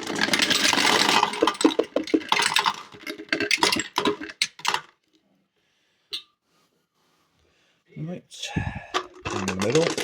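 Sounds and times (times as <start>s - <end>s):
dice rattling in a jar: 0.0s - 4.8s, 9.1s - 10.0s.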